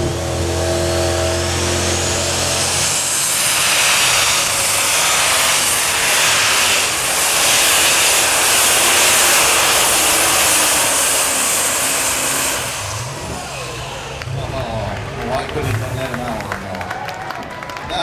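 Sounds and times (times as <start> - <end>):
tractor engine and turbo roar: 0.0 - 18.0.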